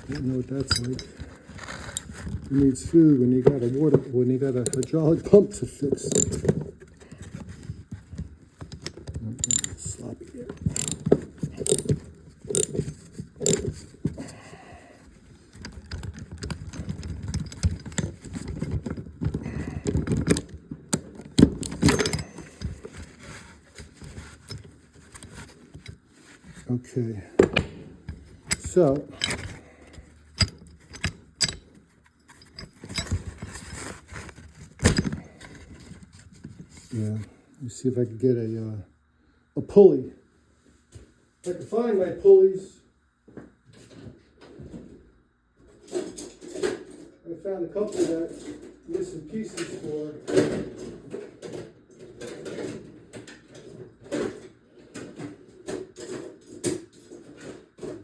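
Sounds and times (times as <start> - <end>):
metal tools clinking: 0.0 - 2.9, 4.5 - 6.7, 8.8 - 13.9, 21.4 - 23.4, 27.4 - 34.0
metal rattle: 0.0 - 3.6, 4.4 - 5.2, 5.8 - 6.8, 8.7 - 13.9, 15.6 - 23.2, 27.4 - 35.3.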